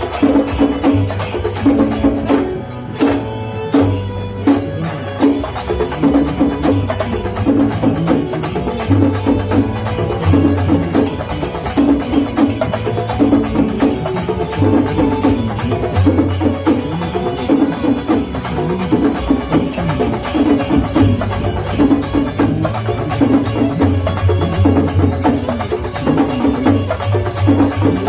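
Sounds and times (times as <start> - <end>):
fast drumming: 0.0 - 28.0
pitched melody: 0.0 - 28.0.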